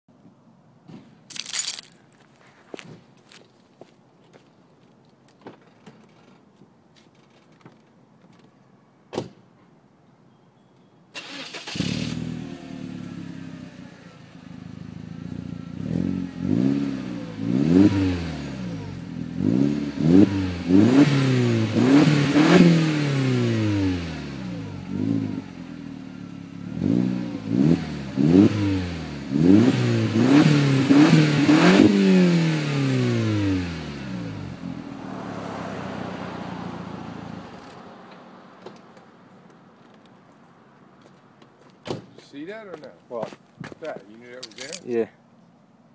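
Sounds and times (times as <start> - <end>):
car exhaust idling and revving: 11.8 - 37.7.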